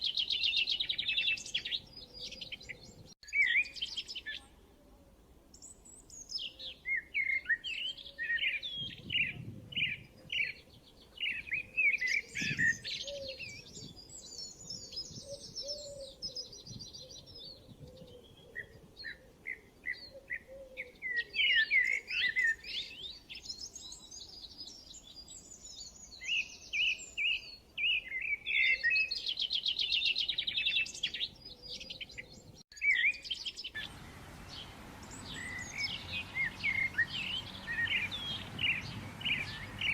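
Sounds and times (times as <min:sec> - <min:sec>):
birds chirping and trilling: 0:06.1 - 0:39.9
background hiss: 0:33.8 - 0:39.9.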